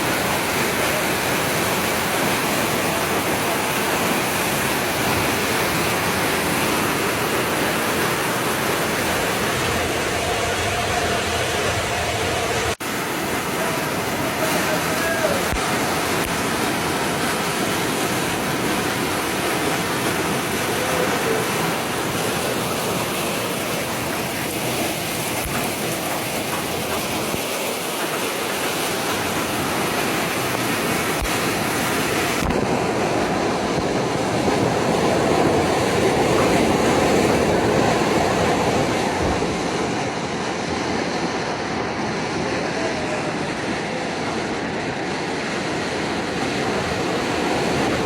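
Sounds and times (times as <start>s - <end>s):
heavy rain: 0.0s - 48.0s
rushing floodwater: 0.0s - 48.0s.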